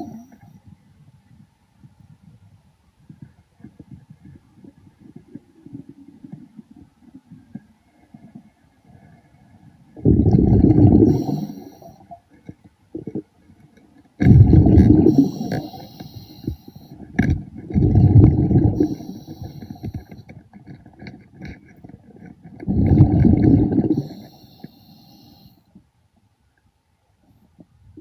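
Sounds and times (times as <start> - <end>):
exhaled bubbles gurgling: 10.0 - 12.2, 14.2 - 20.2, 22.6 - 25.2
hiss of inhaled air: 11.0 - 12.0, 15.0 - 17.0, 18.7 - 20.1, 23.9 - 25.6.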